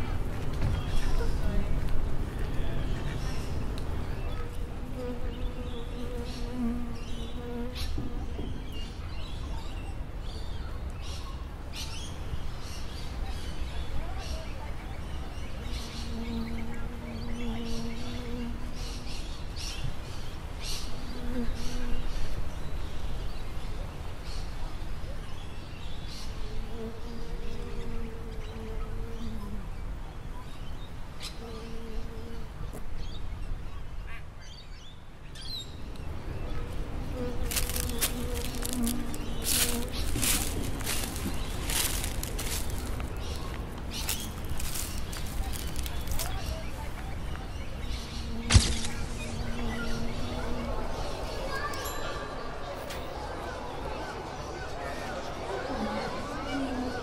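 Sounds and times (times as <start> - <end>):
birds chirping: 0.0 - 24.5, 25.3 - 57.0
insect buzzing: 4.4 - 8.4, 36.9 - 46.7, 47.9 - 50.8.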